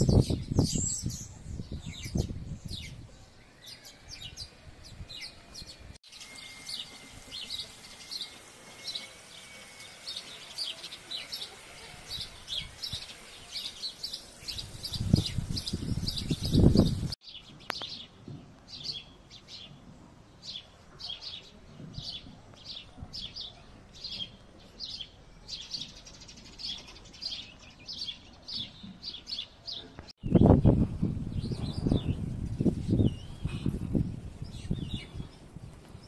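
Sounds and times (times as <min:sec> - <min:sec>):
small songbird chirping: 0:12.2 - 0:19.8.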